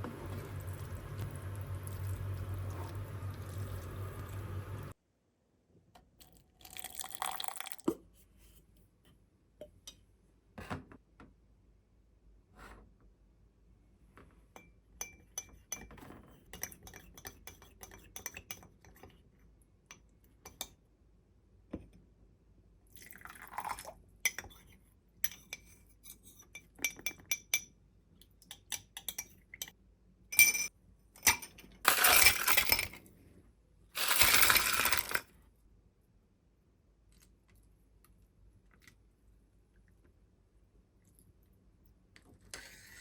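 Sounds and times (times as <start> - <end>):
liquid pouring: 0.0 - 4.9, 6.2 - 7.8, 34.0 - 35.2.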